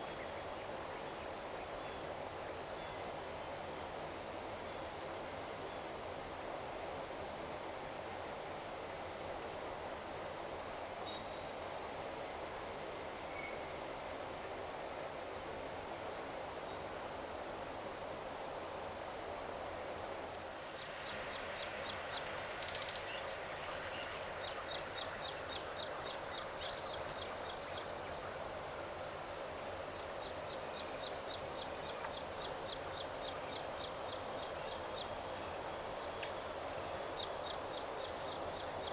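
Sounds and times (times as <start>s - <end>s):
crickets chirping: 0.0s - 38.9s
loud high insect call: 16.2s - 38.9s.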